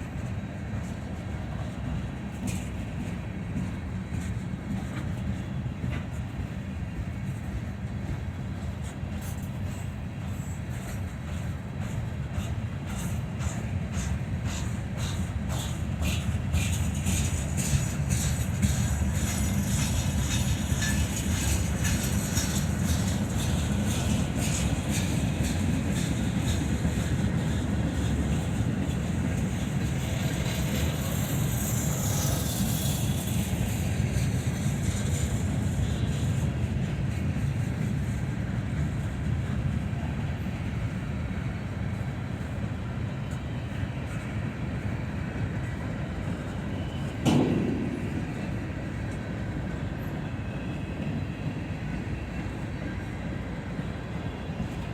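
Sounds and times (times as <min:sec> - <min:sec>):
freight train rumbling past: 0:00.0 - 0:54.9
wheels clacking over rail joints: 0:09.2 - 0:36.5.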